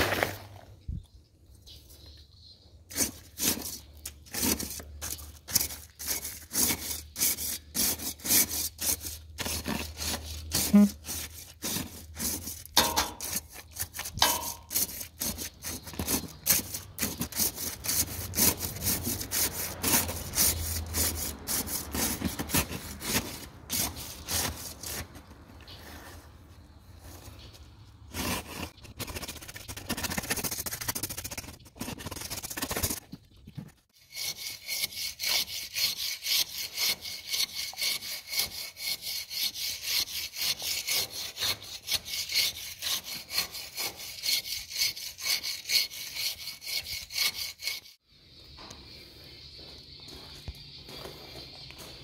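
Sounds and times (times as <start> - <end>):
hand saw cutting: 2.9 - 25.2, 28.1 - 33.0, 34.0 - 48.0.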